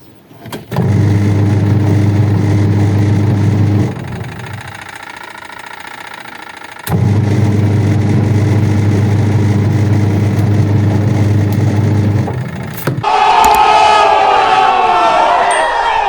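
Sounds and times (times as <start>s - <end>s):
motor switch click: 0.5s - 13.6s
washing machine motor hum: 0.6s - 13.1s.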